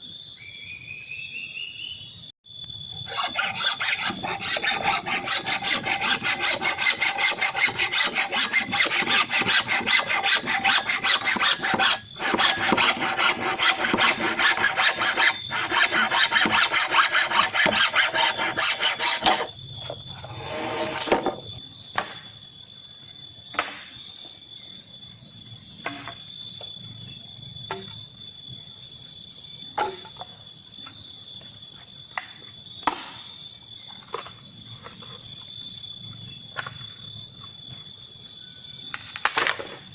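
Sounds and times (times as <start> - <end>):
hand saw cutting wood: 3.1 - 19.5, 20.3 - 21.2.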